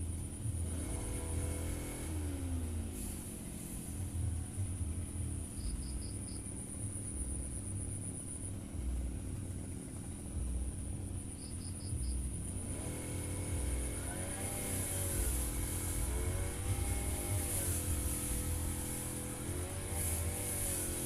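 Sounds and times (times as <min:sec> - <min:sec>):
brush cutter engine: 0:00.0 - 0:05.1, 0:11.9 - 0:21.0
insect buzzing: 0:11.3 - 0:21.0.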